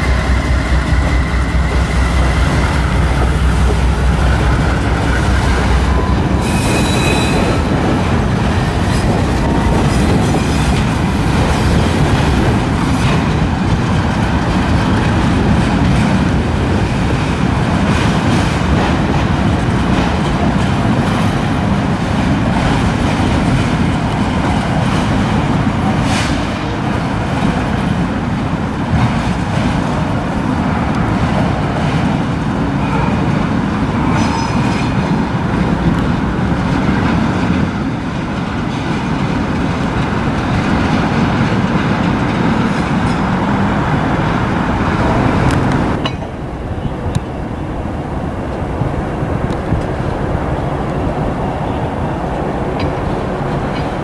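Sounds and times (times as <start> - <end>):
freight train rolling past: 0.0 - 54.0
high wheel squeals: 4.6 - 7.7.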